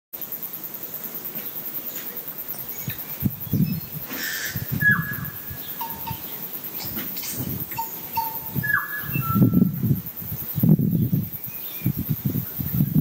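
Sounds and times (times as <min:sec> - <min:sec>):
birds chirping: 0:01.4 - 0:13.0
bird whistled note: 0:04.2 - 0:06.4, 0:07.8 - 0:09.7.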